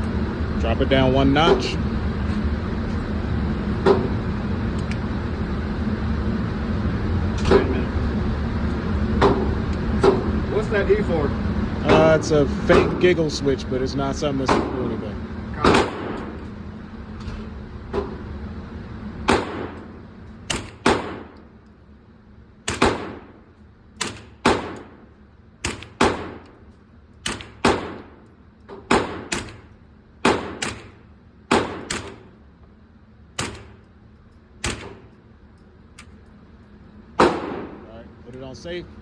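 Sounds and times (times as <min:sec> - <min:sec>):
gunshots echoing: 0:15.6 - 0:16.4, 0:19.3 - 0:21.4, 0:22.7 - 0:23.4, 0:24.0 - 0:25.0, 0:25.6 - 0:26.5, 0:27.2 - 0:28.2, 0:28.9 - 0:32.3, 0:37.2 - 0:37.9.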